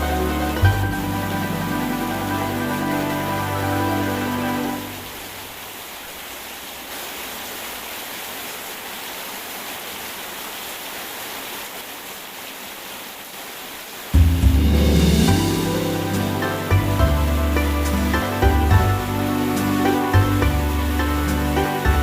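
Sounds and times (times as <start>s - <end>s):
soft music with deep bass: 0.0s - 5.0s, 14.2s - 22.0s
rain hissing: 0.0s - 22.0s.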